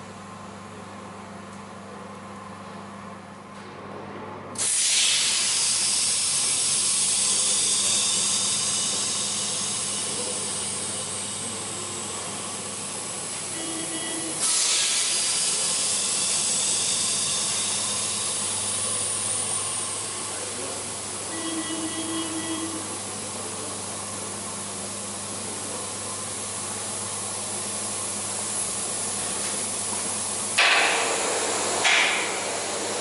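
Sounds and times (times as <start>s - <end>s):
compressed air hissing: 4.6s - 23.9s
steady low hum: 5.5s - 33.0s.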